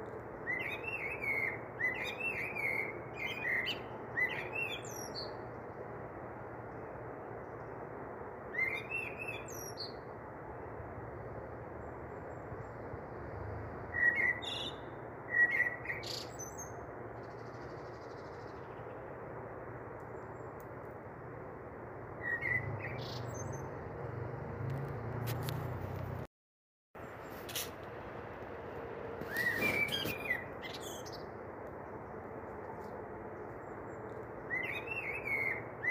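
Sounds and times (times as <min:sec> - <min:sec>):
small birds chirping: 0:22.2 - 0:23.8, 0:29.2 - 0:31.3.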